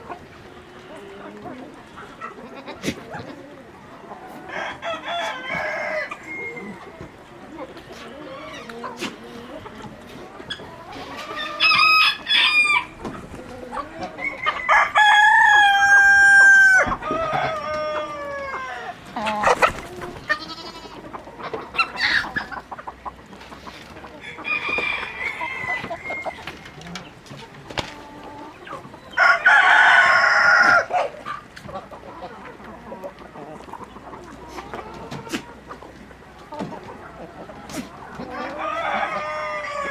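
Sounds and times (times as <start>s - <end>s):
chickens clucking: 0.0s - 39.9s
rooster crowing: 4.5s - 6.9s, 11.3s - 19.0s, 24.2s - 26.6s, 29.2s - 30.9s, 38.3s - 39.9s.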